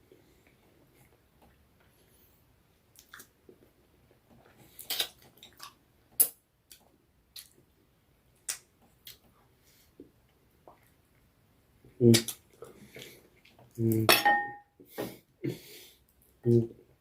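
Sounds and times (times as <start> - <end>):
person chewing noodles: 2.9 - 3.6, 4.4 - 7.6.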